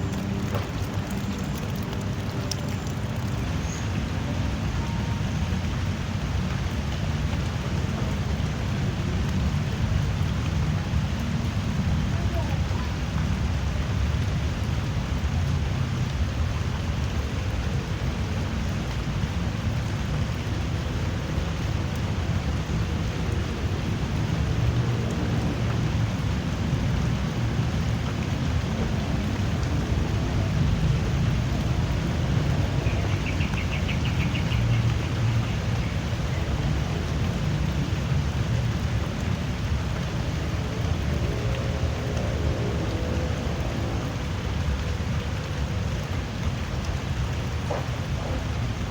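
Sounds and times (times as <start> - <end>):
heavy low rumble: 0.0 - 14.7
drizzling rain: 0.0 - 48.9.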